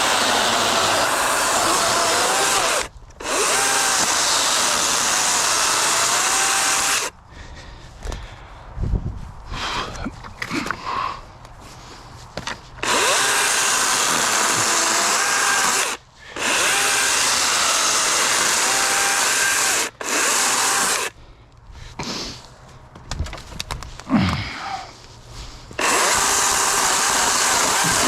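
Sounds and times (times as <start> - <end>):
battery chainsaw cutting logs: 0.0 - 7.1, 12.8 - 21.2, 25.8 - 28.0.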